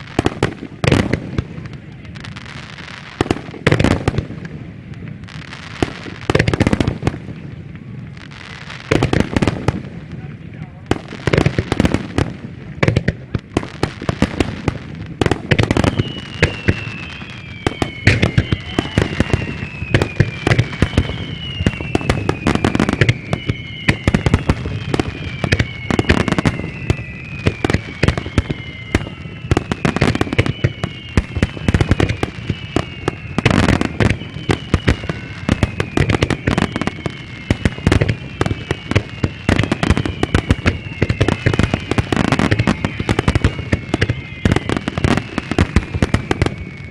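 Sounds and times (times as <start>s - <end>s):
falling firework whistles: 0.0s - 46.9s
fireworks bangs and crackles: 0.0s - 46.9s.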